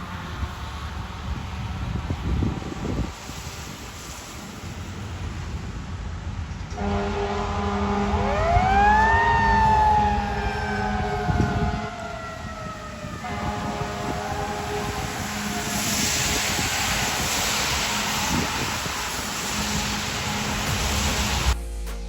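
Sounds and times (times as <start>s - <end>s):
air horn blasts: 6.7s - 12.2s, 13.2s - 16.5s.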